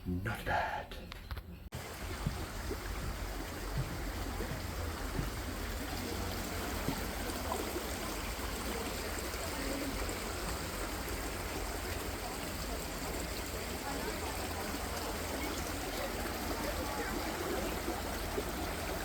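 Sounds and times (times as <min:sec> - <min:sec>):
running water rushing: 0:01.7 - 0:19.0.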